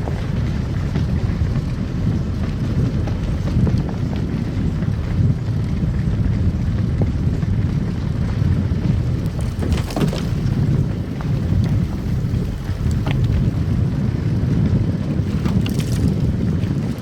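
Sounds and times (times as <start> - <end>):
car tyres and engine rumbling: 0.0 - 17.0.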